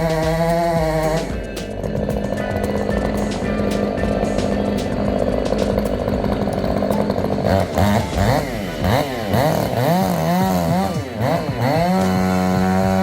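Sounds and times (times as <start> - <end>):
chainsaw engine revving: 0.0 - 13.0.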